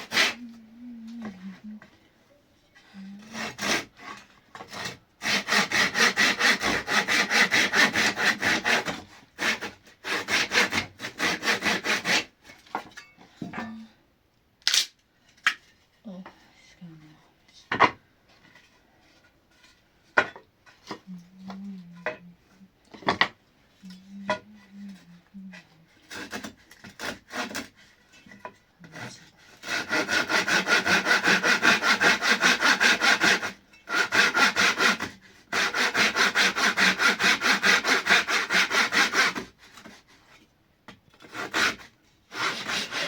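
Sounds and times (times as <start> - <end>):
hand saw strokes: 0.0 - 1.7, 3.0 - 12.6, 22.9 - 40.4, 41.2 - 43.0.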